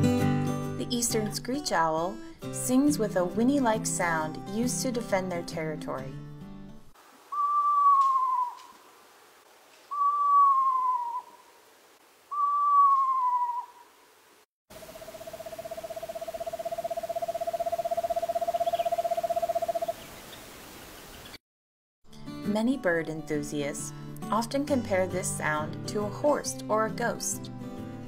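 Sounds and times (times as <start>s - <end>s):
owl long even trill: 7.2s - 8.9s, 9.8s - 11.6s, 12.3s - 14.0s, 14.8s - 20.2s
owl quavering whinnies: 7.3s - 8.8s, 9.9s - 11.5s, 12.3s - 13.9s.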